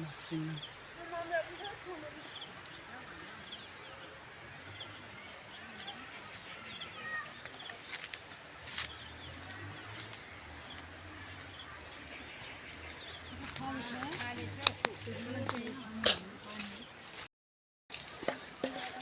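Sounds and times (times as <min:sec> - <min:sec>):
steady high-pitched hiss: 0:00.0 - 0:14.7
birds chirping: 0:00.0 - 0:17.3.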